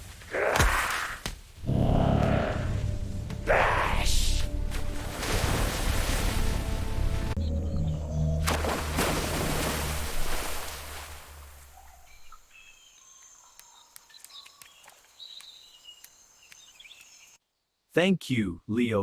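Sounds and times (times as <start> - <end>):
loud low rumble: 1.6 - 4.6
bird chirps: 11.8 - 17.4.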